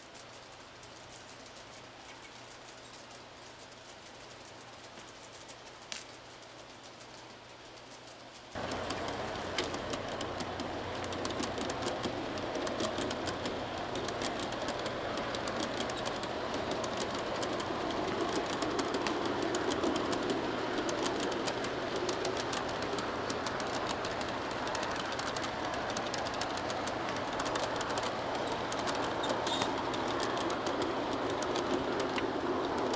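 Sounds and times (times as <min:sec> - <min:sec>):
steady low hum: 0:00.0 - 0:32.9
train wheels clicking over rail joints: 0:08.5 - 0:32.9.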